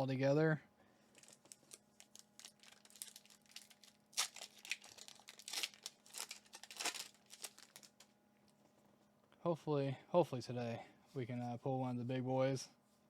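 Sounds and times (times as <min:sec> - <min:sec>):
foil wrapper crinkling and tearing: 0:01.1 - 0:08.1.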